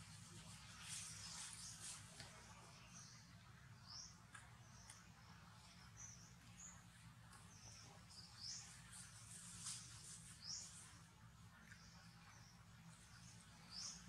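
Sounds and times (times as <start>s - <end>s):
low steady hum: 0.0s - 14.0s
small birds chirping: 0.0s - 14.0s.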